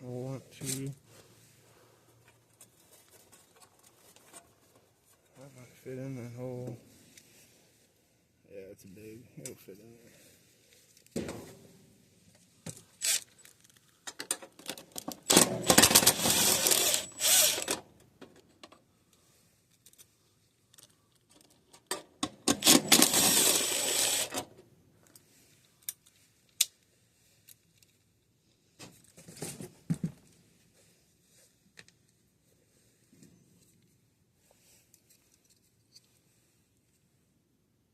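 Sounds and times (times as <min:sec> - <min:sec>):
tools clicking and rattling: 0:12.7 - 0:18.8, 0:19.7 - 0:24.5.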